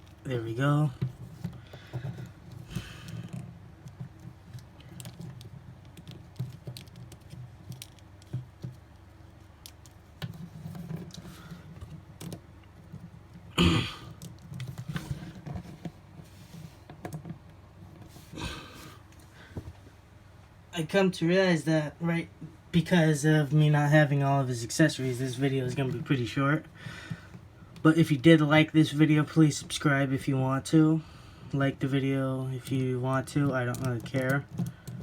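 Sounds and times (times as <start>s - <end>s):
plastic figure clicks and rustles: 1.0s - 13.5s, 32.6s - 35.0s.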